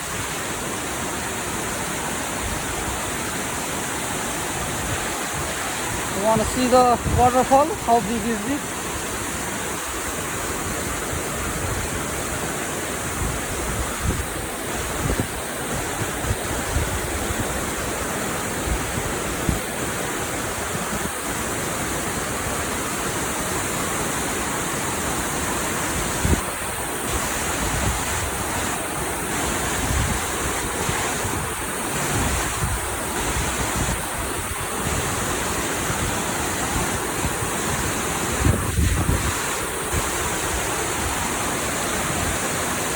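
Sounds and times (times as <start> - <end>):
waterfall rushing: 0.0 - 42.9
wind buffeting the microphone: 4.5 - 8.0, 8.9 - 21.3, 25.8 - 42.5.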